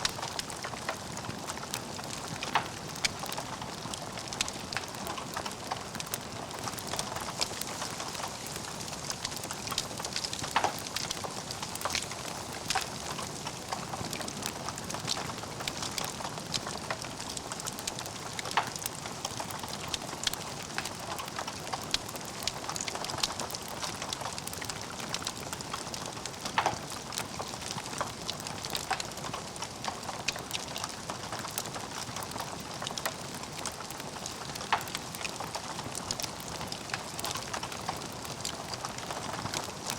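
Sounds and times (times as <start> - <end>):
wood fire crackling: 0.0 - 39.9
fire pops: 1.7 - 23.8.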